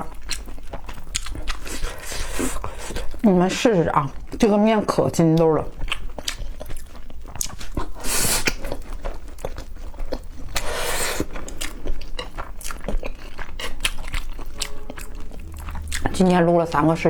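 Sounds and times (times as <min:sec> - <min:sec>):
wet chewing clicks: 0:00.0 - 0:17.0
noodle slurping: 0:01.5 - 0:03.2, 0:07.8 - 0:09.0, 0:10.4 - 0:16.2.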